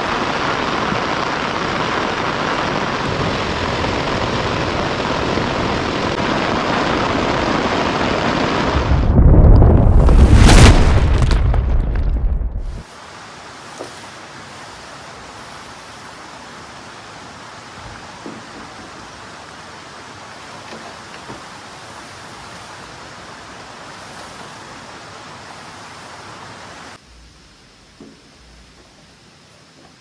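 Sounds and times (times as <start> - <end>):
heavy rain falling: 0.0 - 30.0
faint knocks: 17.8 - 19.0, 28.0 - 29.0.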